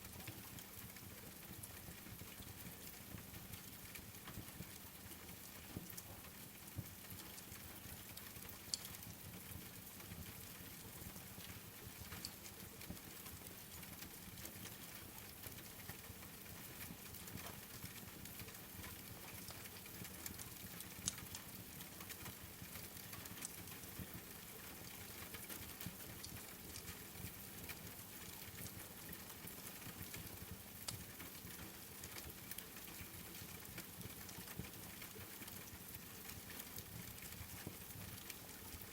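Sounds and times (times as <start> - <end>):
faint steady rain: 0.0 - 38.9
wood fire crackling and popping: 21.0 - 22.4.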